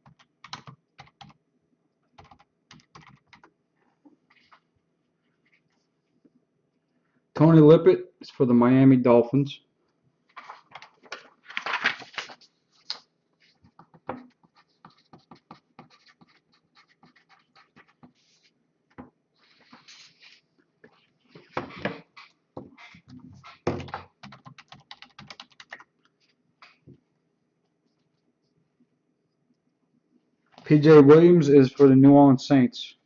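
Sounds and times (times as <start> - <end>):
keyboard and mouse clicking: 0.0 - 1.4, 2.2 - 3.5, 23.8 - 25.9.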